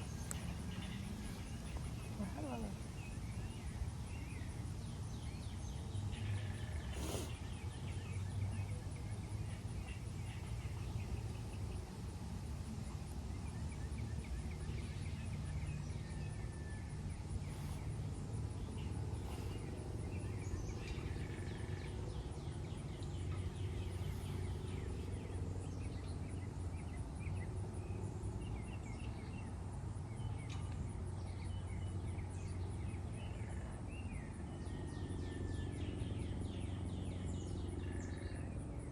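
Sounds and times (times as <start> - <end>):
birds chirping and trilling: 0.0 - 12.2
steady low rumble: 0.0 - 38.8.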